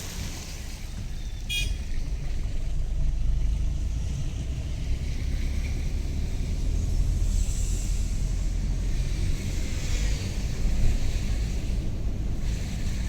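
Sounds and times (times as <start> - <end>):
vehicle rumble in traffic: 0.0 - 13.0.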